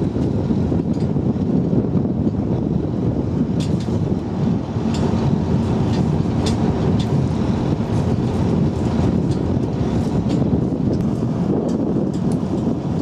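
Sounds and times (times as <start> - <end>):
vehicle engine rumbling: 0.0 - 13.0
light clicks and rattles: 4.9 - 7.3.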